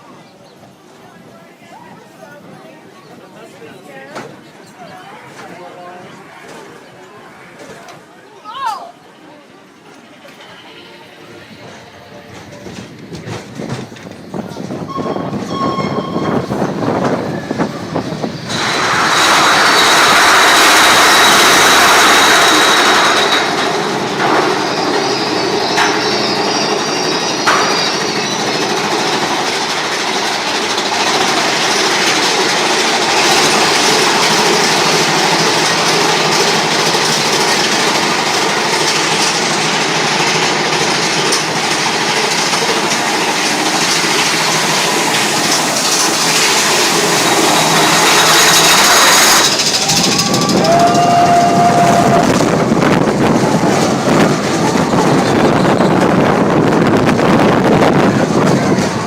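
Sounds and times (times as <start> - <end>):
roller coaster wheels rattling: 0.0 - 59.0
low rushing: 13.0 - 59.0
brief held tone: 14.9 - 16.6.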